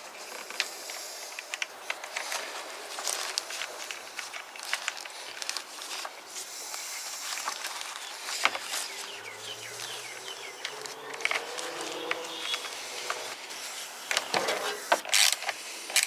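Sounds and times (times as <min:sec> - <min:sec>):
sharp clicks: 0:09.8 - 0:13.3.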